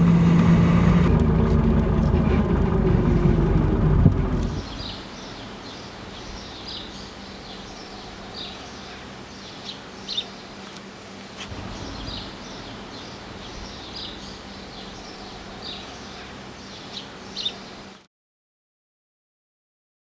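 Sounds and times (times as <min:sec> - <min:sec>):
outdoor background hiss: 0:04.3 - 0:18.1
small birds chirping: 0:04.4 - 0:18.1.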